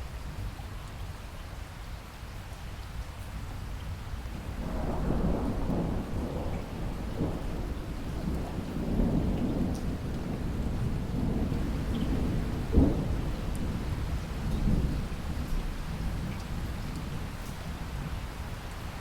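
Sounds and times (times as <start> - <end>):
heavy rain: 0.0 - 19.0
thunder rolling: 4.6 - 15.5.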